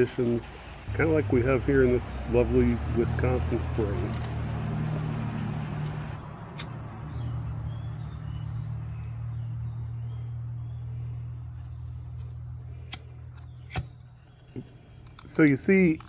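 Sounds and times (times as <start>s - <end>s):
low engine hum: 0.8s - 15.3s
sharp clicks: 5.8s - 6.8s, 12.2s - 16.0s.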